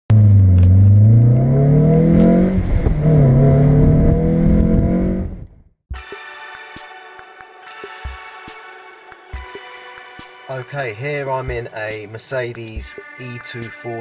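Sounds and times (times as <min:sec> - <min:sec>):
car engine accelerating: 0:00.1 - 0:05.6
music: 0:05.9 - 0:14.0.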